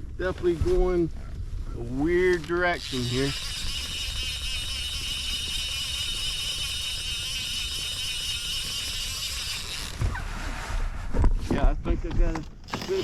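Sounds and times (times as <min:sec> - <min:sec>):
wind on microphone: 0:00.0 - 0:12.4
high-pitched whirring: 0:02.8 - 0:10.1.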